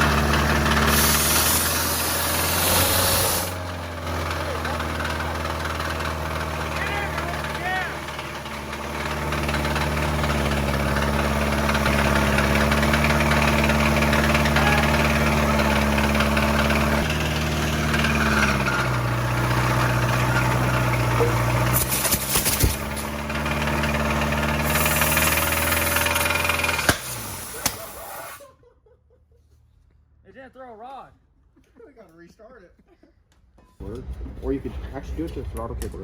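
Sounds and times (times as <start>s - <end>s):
truck engine running: 0.0s - 28.4s, 33.8s - 36.0s
air hiss bursts: 0.8s - 3.6s, 24.6s - 28.4s
sharp crack: 20.2s - 23.2s, 24.7s - 28.4s, 33.8s - 36.0s.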